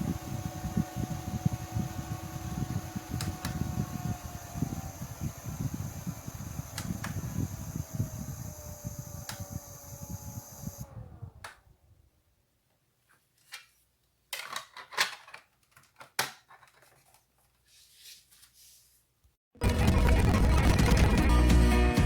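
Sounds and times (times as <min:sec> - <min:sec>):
small fan motor running down: 0:00.0 - 0:11.7, 0:19.6 - 0:21.8
rubbing and knocking handling sounds: 0:13.0 - 0:20.2.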